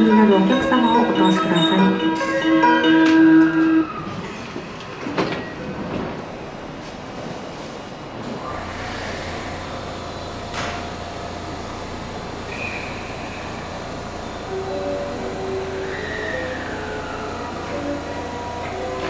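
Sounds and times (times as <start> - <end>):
electronic platform chime: 0.0 - 3.4
train rumbling: 0.0 - 19.0.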